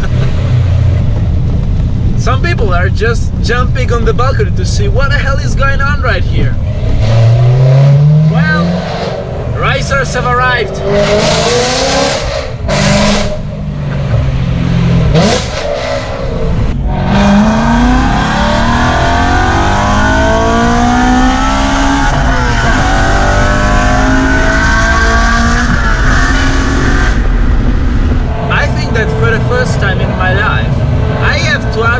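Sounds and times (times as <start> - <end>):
car engine revving and accelerating: 6.6 - 31.9.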